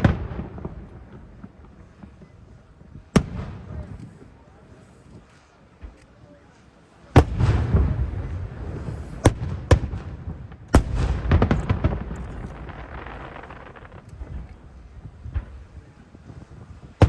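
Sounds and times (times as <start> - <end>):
firework crackling: 7.2 - 17.0
firework shells bursting: 10.7 - 15.6
low rumble: 11.1 - 15.8.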